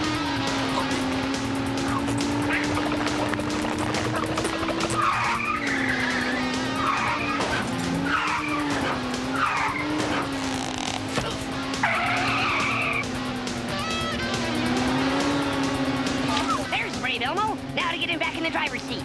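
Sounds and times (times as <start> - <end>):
cartoon engine drone: 0.0 - 7.4, 9.6 - 15.5
tire squeals: 0.0 - 18.4.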